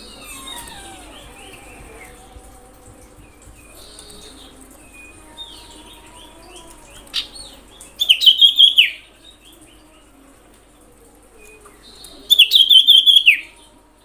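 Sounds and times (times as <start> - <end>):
bird chirping: 3.3 - 9.9, 11.9 - 13.6.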